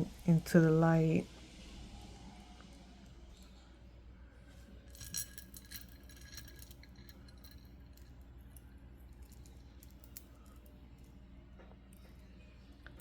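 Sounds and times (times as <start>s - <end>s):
crystal beads clinking: 4.8s - 10.7s.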